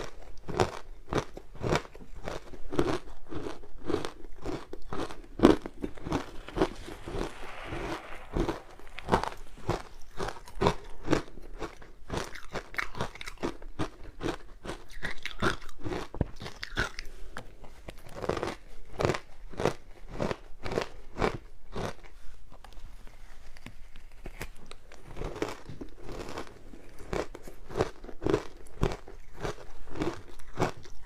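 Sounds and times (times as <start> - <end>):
ice crunching being chewed: 0.0 - 6.2, 10.8 - 17.2.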